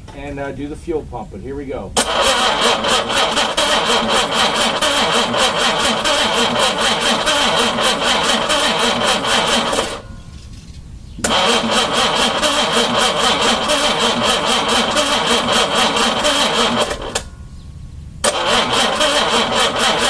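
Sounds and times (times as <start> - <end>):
engine cranking on starter: 1.9 - 17.3, 18.2 - 20.0.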